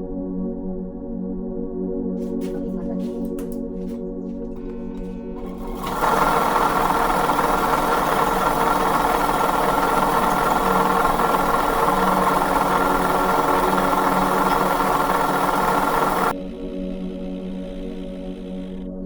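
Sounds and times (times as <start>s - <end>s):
power tool motor whirring: 4.6s - 18.9s.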